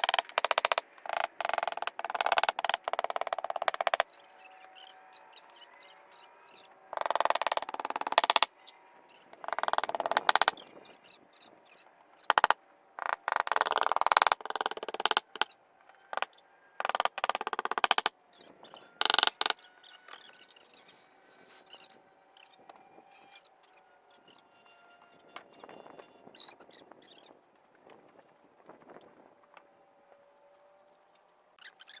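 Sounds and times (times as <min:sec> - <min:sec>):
rapid clicking and rattling: 0:00.0 - 0:04.0, 0:07.0 - 0:08.5, 0:09.4 - 0:10.6.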